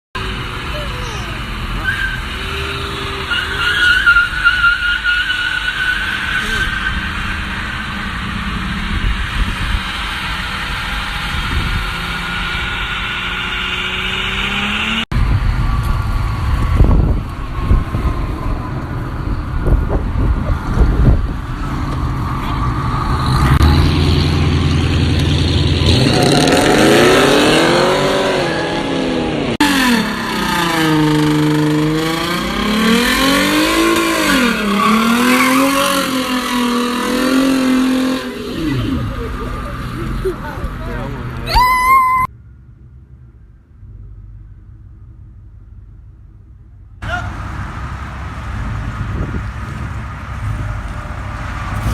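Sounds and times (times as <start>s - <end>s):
car engines revving hard: 0.2s - 41.5s, 47.0s - 51.9s
tires squealing: 0.3s - 15.0s, 25.8s - 42.3s.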